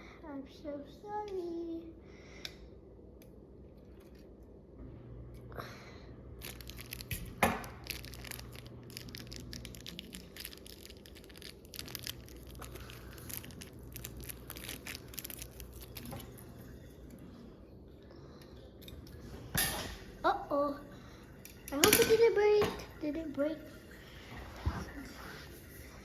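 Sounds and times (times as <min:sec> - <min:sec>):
plastic parts clicking and rustling: 0:06.4 - 0:16.4.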